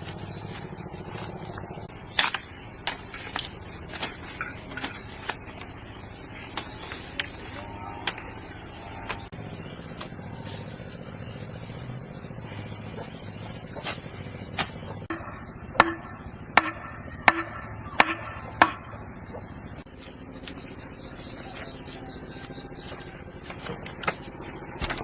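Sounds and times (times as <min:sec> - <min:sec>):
crickets chirring: 0:00.0 - 0:25.0
sharp ringing knocks: 0:14.6 - 0:19.1.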